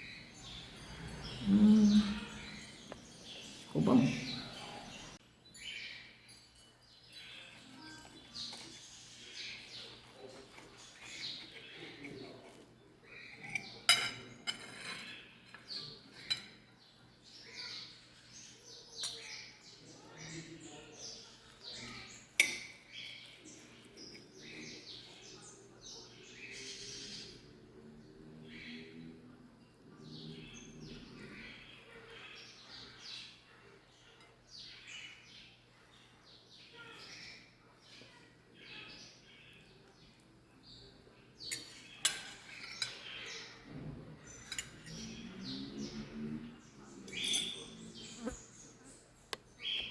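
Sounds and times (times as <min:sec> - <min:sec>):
birds chirping: 0:00.0 - 0:49.9
tableware clinking: 0:13.3 - 0:16.8, 0:22.3 - 0:22.8, 0:41.5 - 0:43.1, 0:44.2 - 0:45.4, 0:47.0 - 0:48.3.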